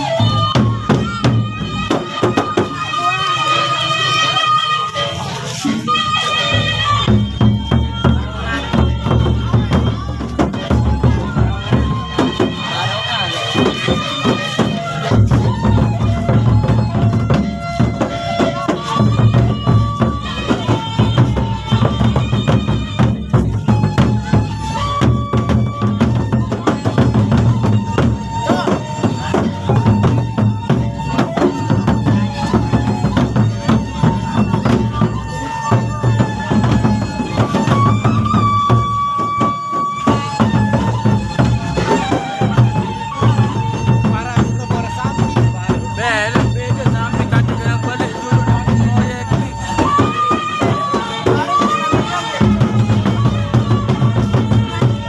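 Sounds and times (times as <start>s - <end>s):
large barrel drums beating: 0.0s - 55.0s
reed wind instrument melody: 0.0s - 55.0s.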